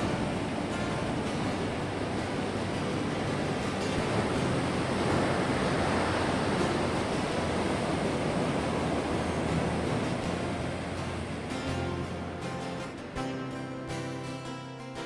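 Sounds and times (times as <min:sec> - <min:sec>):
surf waves washing ashore: 0:00.0 - 0:14.6.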